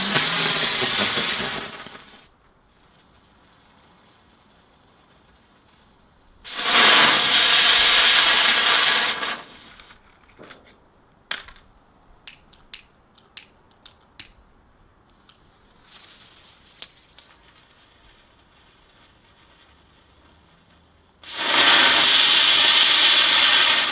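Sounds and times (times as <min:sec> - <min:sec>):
firework hissing: 0:00.0 - 0:02.3, 0:03.0 - 0:10.0, 0:15.5 - 0:23.9
firework pops: 0:00.0 - 0:02.9, 0:06.5 - 0:10.6, 0:21.2 - 0:23.9.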